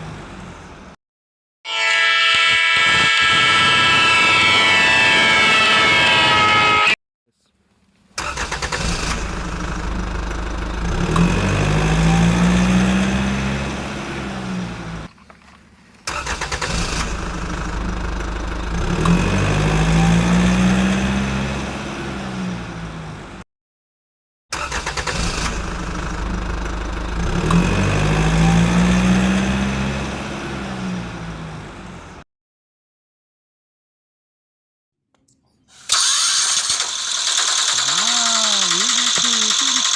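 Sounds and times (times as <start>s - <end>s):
vehicle engine starting and revving: 8.2s - 15.1s, 16.0s - 23.4s, 24.5s - 32.2s, 35.9s - 39.9s.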